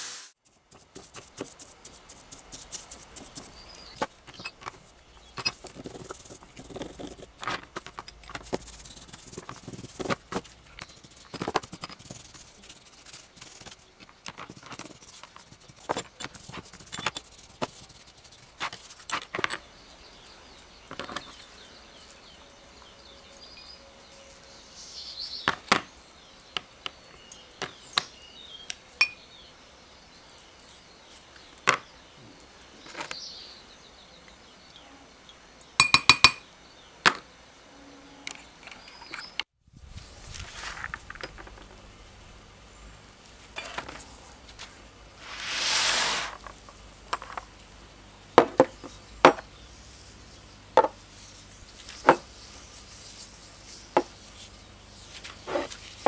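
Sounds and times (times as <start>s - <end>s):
metal parts clinking against glass: 5.3s - 5.8s.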